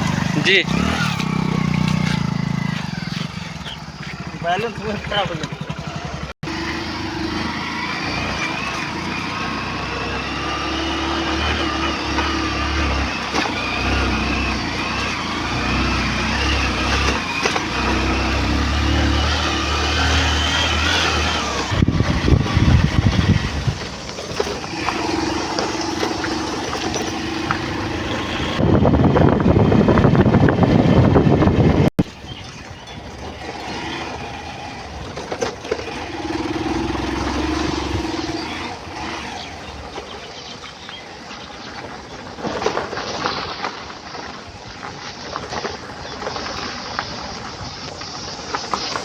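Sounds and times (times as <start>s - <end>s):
rough noisy rumbling: 0.0s - 49.0s
vehicle engine rumble: 0.0s - 49.0s.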